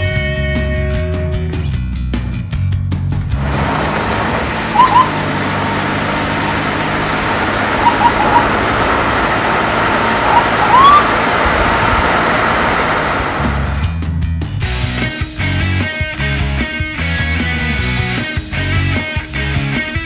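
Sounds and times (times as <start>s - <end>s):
cars driving: 3.3s - 14.0s
short high squeaks: 4.6s - 9.2s, 10.0s - 11.4s.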